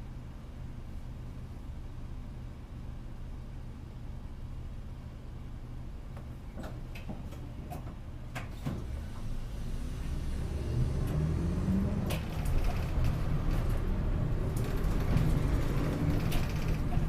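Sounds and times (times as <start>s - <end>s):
bus engine and road rumble: 0.0s - 17.0s
interior clicks and rattles: 12.0s - 17.0s.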